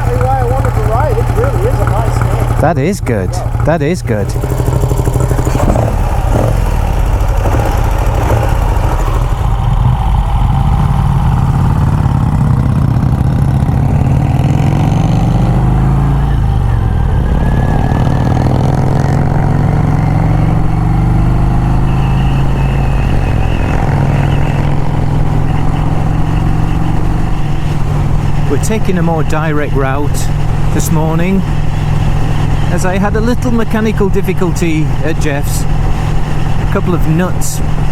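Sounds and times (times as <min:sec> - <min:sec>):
motorcycle engine revving: 0:00.0 - 0:37.9.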